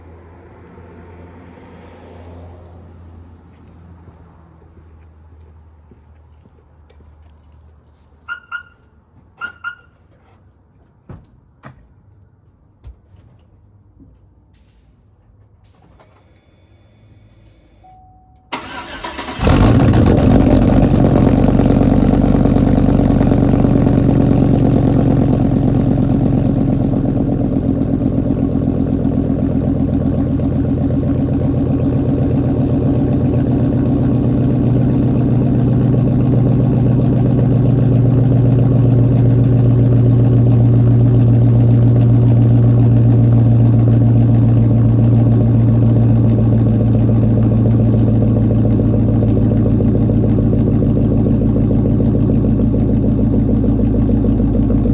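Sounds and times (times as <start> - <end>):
truck engine cranking and idling: 15.6 - 54.9.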